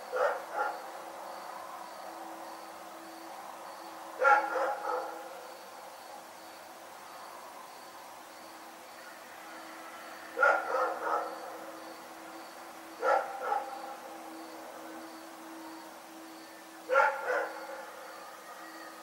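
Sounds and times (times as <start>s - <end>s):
dog barking: 0.1s - 0.8s, 4.2s - 5.2s, 10.4s - 11.4s, 13.0s - 13.8s, 16.9s - 17.6s.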